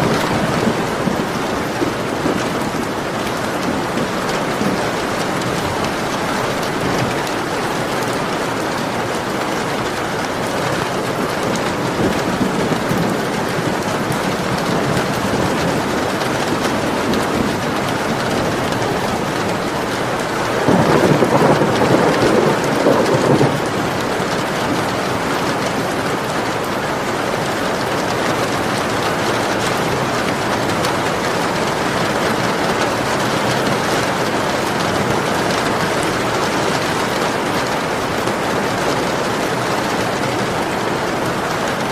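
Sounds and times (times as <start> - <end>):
thunder rolling: 0.0 - 26.2
steady rain: 0.0 - 41.9.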